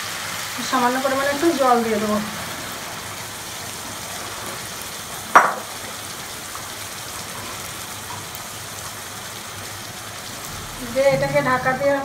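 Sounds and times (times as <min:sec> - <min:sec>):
chicken sizzling in a pan: 0:00.0 - 0:12.0
sharp ringing knock: 0:05.4 - 0:05.7.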